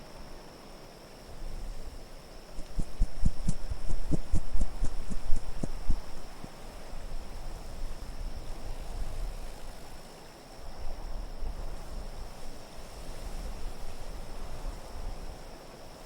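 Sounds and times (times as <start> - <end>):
wind gusting: 2.6 - 6.5.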